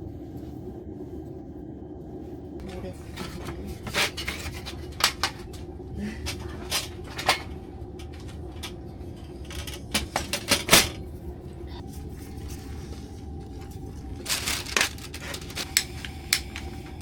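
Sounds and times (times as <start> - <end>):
steady low hum: 0.0 - 17.0
dishes and cutlery clinking: 2.6 - 11.8.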